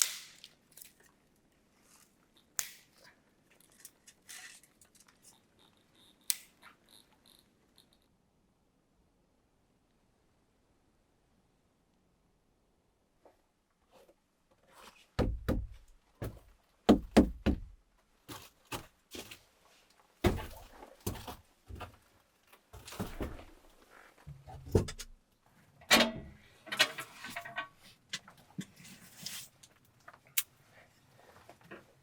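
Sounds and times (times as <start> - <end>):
knocks and thuds of objects: 15.2 - 17.8, 20.2 - 22.0.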